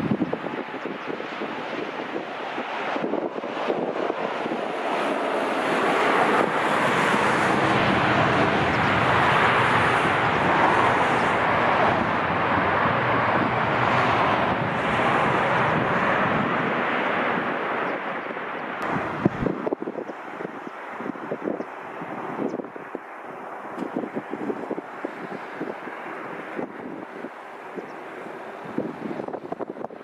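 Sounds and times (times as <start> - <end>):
jet engines roaring: 0.0 - 30.0
wind buffeting microphone: 0.0 - 30.0.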